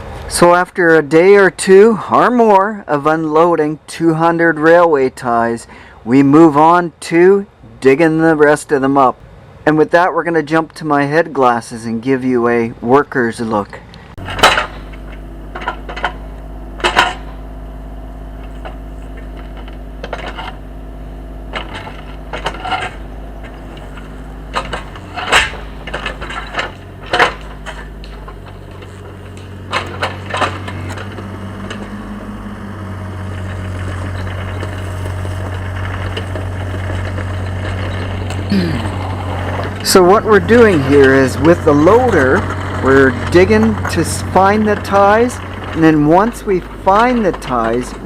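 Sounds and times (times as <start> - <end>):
loader engine running: 0.0 - 48.0
sharp metal clanks and knocks: 14.2 - 32.4, 33.1 - 48.0.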